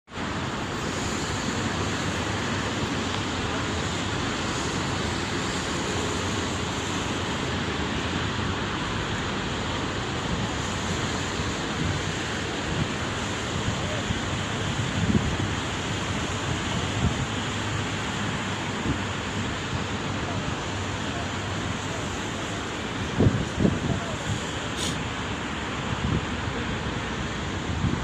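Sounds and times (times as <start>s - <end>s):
sea surf: 0.1s - 28.0s
wind buffeting microphone: 8.3s - 26.4s, 27.5s - 28.0s.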